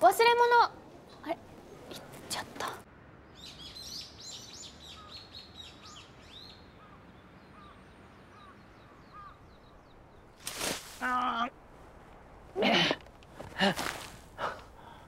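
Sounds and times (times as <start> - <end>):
small birds chirping: 0.8 - 11.6.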